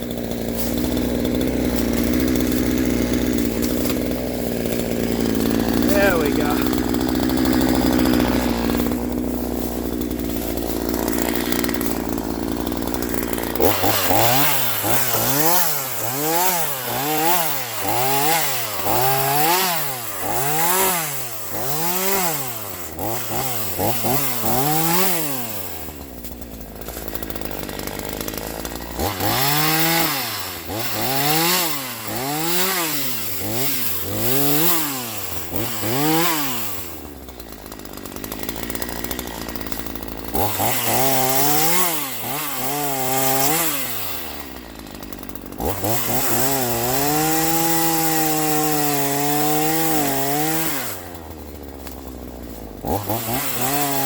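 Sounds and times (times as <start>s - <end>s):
chainsaw revving: 0.0s - 54.0s.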